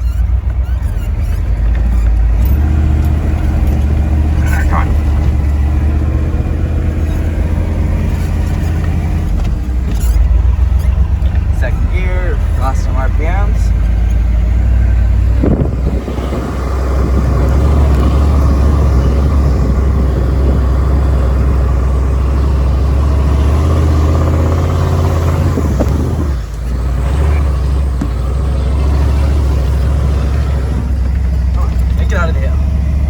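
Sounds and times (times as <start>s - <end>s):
diesel truck engine under load: 0.0s - 33.0s.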